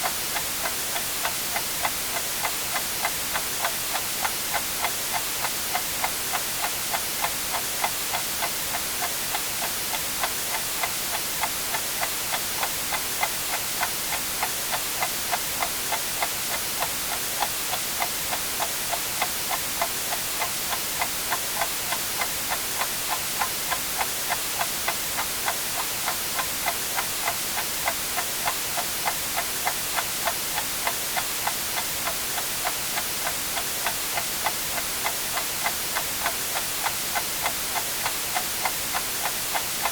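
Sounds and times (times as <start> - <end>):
white noise hiss: 0.0 - 39.9
clock ticking: 13.2 - 39.9.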